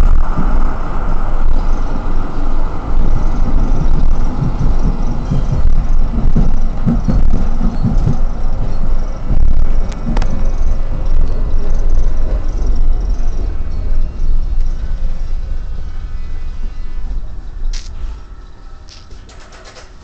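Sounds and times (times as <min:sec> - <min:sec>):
low thumps from track: 0:00.0 - 0:16.0
tram wheels rumbling on rail: 0:00.0 - 0:20.0.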